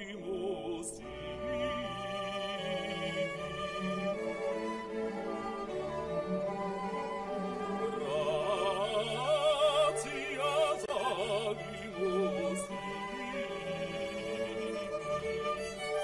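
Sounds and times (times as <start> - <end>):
operatic voice singing: 0.0 - 3.5, 7.7 - 13.8
orchestral strings: 0.0 - 16.0.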